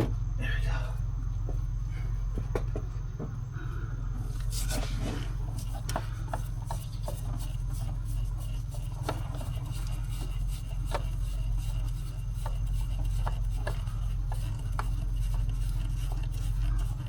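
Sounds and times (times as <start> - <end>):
steady low hum: 0.0 - 17.0
light clicks and knocks: 2.3 - 3.4
hands unscrewing oil filter: 4.2 - 17.0.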